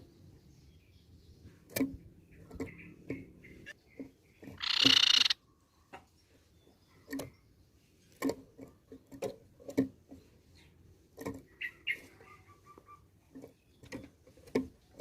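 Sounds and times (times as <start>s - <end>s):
bird harsh scolding call: 4.6s - 5.4s.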